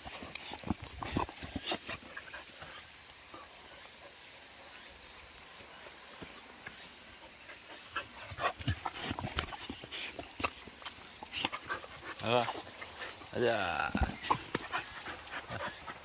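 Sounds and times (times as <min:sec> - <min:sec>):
dogs scuffing and clicking: 0:07.9 - 0:16.0.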